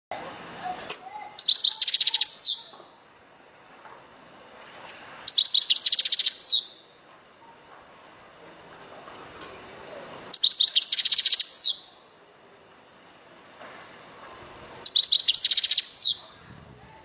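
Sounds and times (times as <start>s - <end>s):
bird twittering: 0.9s - 2.9s, 5.3s - 7.0s, 10.3s - 12.0s, 14.8s - 16.5s.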